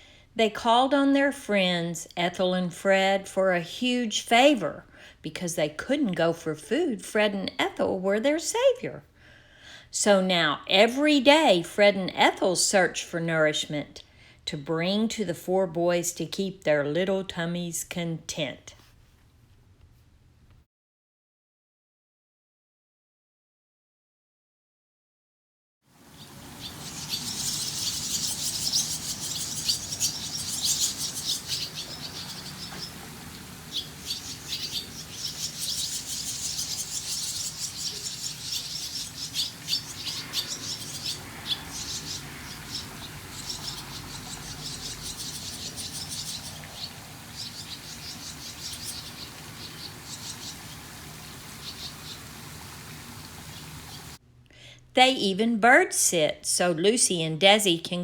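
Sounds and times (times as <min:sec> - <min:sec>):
small birds chirping: 0:26.0 - 0:54.2.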